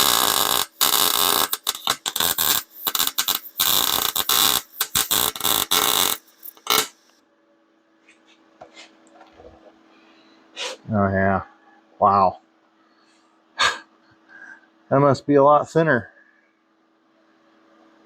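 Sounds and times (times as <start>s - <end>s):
welder arc crackling: 0.0s - 7.2s.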